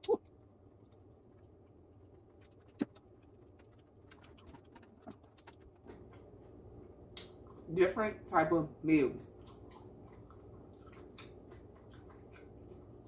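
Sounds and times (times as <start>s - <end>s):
mouth clicks from chewing: 9.4s - 12.6s.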